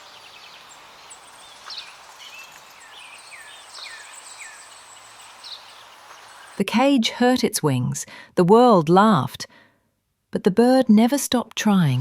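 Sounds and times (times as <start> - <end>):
small birds chirping: 0.0 - 6.7
steady outdoor hiss: 0.0 - 7.9.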